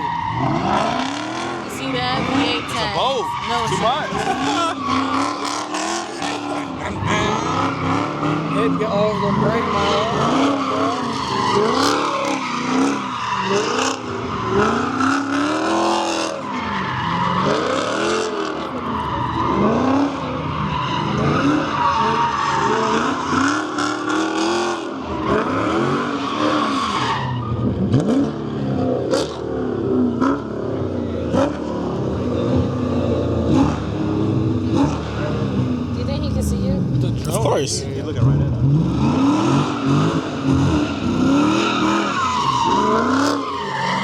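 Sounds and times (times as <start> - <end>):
tyres squealing: 0.0 - 24.5
car engine revving: 0.0 - 44.0.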